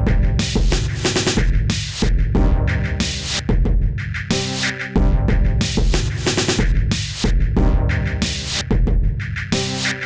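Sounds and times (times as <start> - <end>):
deep kick drum: 0.0 - 2.7, 3.5 - 4.0, 5.0 - 7.9, 8.7 - 9.2
bass and synth notes: 0.0 - 10.0.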